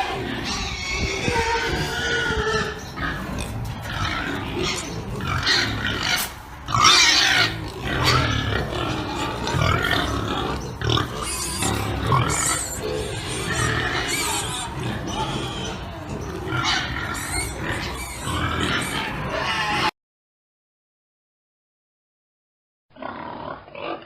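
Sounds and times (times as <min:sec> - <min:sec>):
pigs grunting: 0:00.0 - 0:19.9, 0:23.0 - 0:24.0
pigs squealing: 0:00.0 - 0:20.0, 0:23.0 - 0:24.0.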